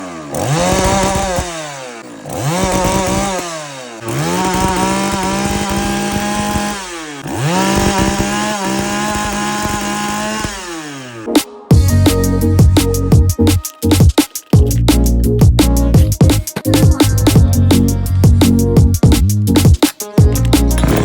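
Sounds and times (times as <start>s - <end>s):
chainsaw engine revving: 0.0s - 11.3s, 20.7s - 21.0s.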